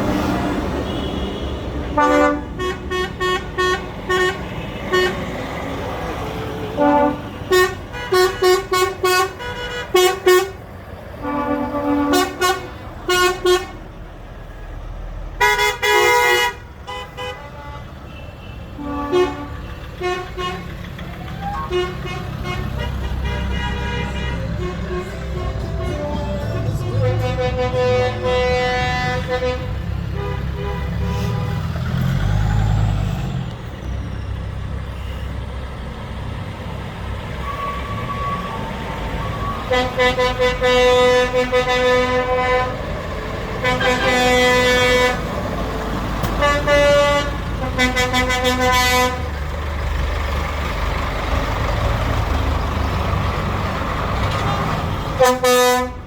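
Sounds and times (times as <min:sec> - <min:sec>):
diesel engines running: 0:00.0 - 0:56.0
vehicle horns tooting: 0:00.7 - 0:05.3, 0:06.7 - 0:10.6, 0:11.2 - 0:13.9, 0:15.4 - 0:20.7, 0:21.4 - 0:31.7, 0:37.4 - 0:42.9, 0:43.6 - 0:45.3, 0:46.2 - 0:49.3, 0:54.4 - 0:56.0.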